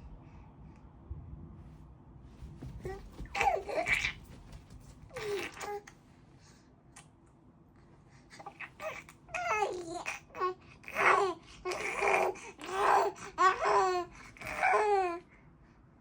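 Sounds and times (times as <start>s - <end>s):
baby babbling: 8.4s - 15.2s.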